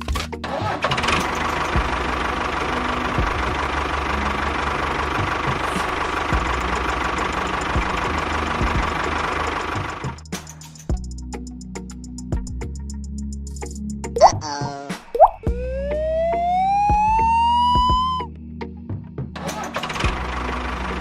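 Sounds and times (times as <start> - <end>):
small engine running with rattling: 0.4 - 11.2, 19.4 - 21.0.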